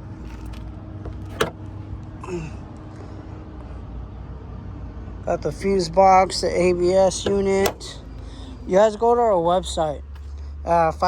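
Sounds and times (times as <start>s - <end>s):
car hood latch click: 1.1s - 1.7s, 7.2s - 8.2s.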